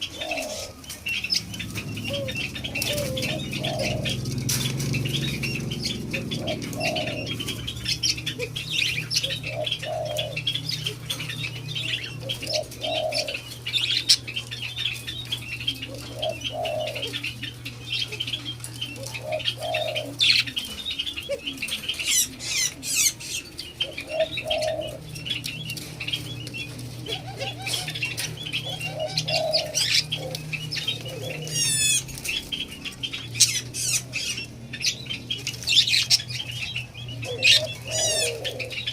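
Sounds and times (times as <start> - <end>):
wing flutters: 0.0 - 8.6
doves cooing: 0.0 - 38.9
doves pecking: 0.0 - 38.9.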